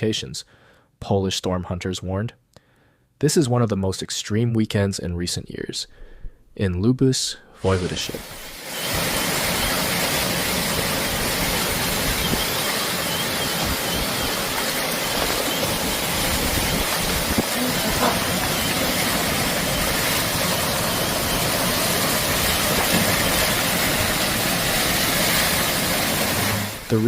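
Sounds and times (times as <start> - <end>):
heavy rain: 7.7 - 27.0.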